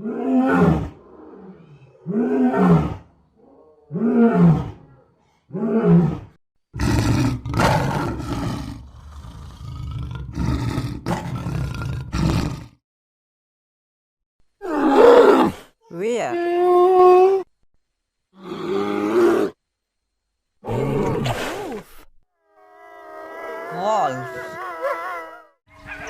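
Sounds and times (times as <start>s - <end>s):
lion growling roar: 0.0s - 12.8s, 18.4s - 19.6s
lion roaring: 0.0s - 12.8s, 18.4s - 19.6s, 20.6s - 21.5s, 22.5s - 26.0s.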